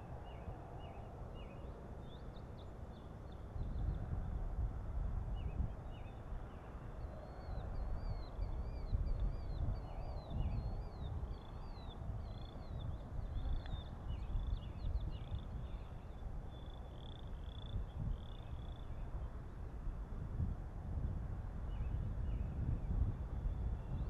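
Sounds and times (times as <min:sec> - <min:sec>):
wind rumble on microphone: 0:00.0 - 0:24.0.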